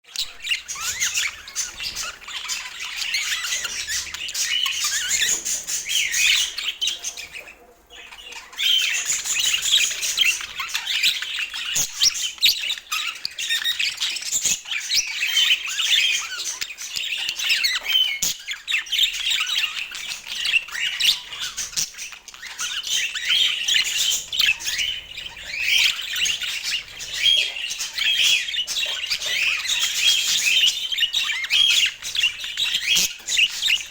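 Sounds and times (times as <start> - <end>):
budgerigars chattering and squawking: 0.1 - 33.9.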